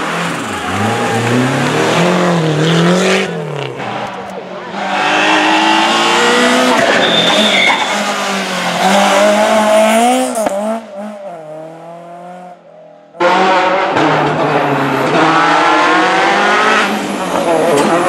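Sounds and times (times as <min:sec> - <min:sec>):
rally car engines revving: 0:00.0 - 0:18.0
high squeal: 0:06.7 - 0:08.4.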